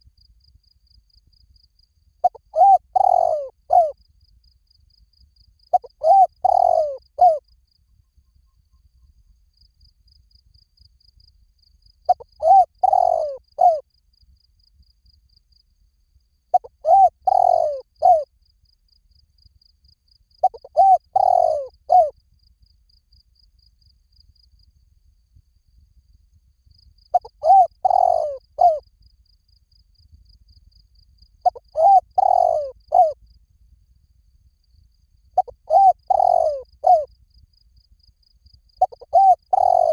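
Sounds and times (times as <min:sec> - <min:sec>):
dove cooing: 0:02.2 - 0:04.0, 0:05.7 - 0:07.4, 0:12.1 - 0:13.8, 0:16.5 - 0:18.2, 0:20.4 - 0:22.1, 0:27.2 - 0:28.8, 0:31.4 - 0:33.2, 0:35.4 - 0:37.1, 0:38.8 - 0:39.9.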